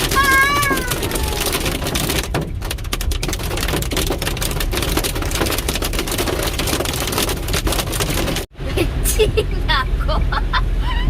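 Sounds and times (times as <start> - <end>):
heavy rain and hail pelting: 0.0 - 8.5.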